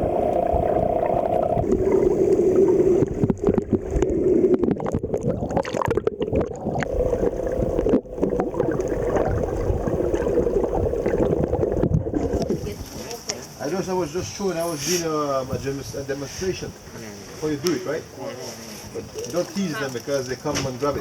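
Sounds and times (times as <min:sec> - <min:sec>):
water splashing against hull: 0:00.0 - 0:13.3, 0:18.8 - 0:21.0.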